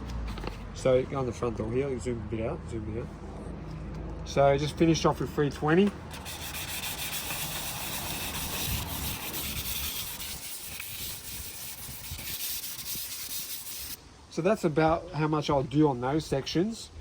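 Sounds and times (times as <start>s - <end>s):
sandpaper rubbing on wood: 6.1s - 14.0s.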